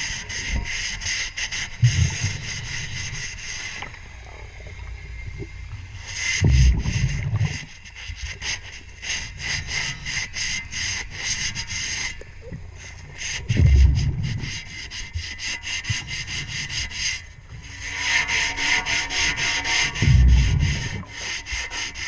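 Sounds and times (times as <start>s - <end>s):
underwater scraping of propeller: 0.0s - 22.0s
diver exhaling bubbles: 6.4s - 7.7s.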